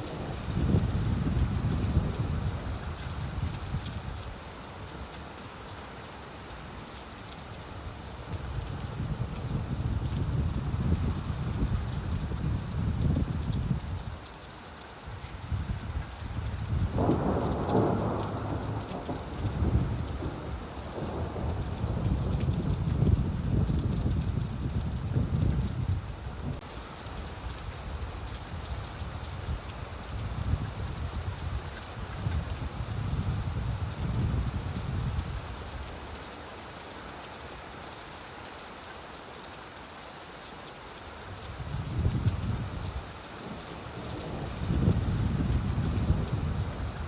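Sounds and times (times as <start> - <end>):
low rolling thunder: 0.0 - 4.2, 16.4 - 26.6, 41.6 - 47.0
steady rain: 0.0 - 47.0.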